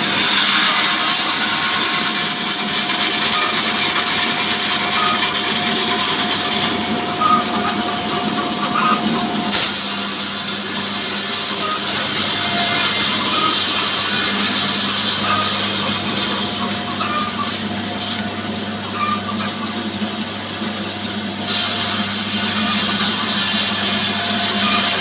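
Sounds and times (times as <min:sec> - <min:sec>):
sawmill engine drone: 0:00.0 - 0:25.0
saw blade hissing in wood: 0:09.5 - 0:16.6, 0:21.5 - 0:25.0.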